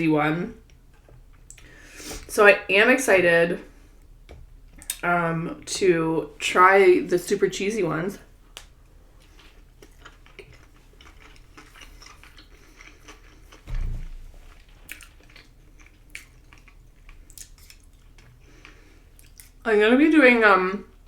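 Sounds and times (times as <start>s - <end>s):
chewing food: 8.6s - 13.6s, 14.6s - 19.6s
low throat sound: 13.7s - 14.6s.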